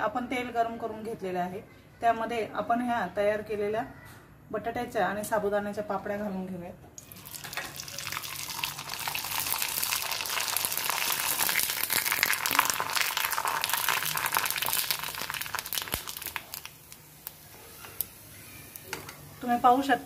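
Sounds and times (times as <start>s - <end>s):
papad sizzling in hot oil: 7.0s - 20.0s.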